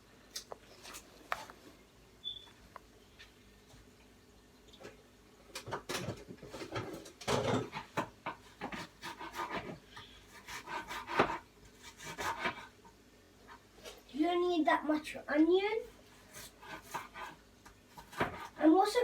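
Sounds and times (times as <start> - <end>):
knife chopping onion on board: 8.0 - 12.7, 16.3 - 18.6.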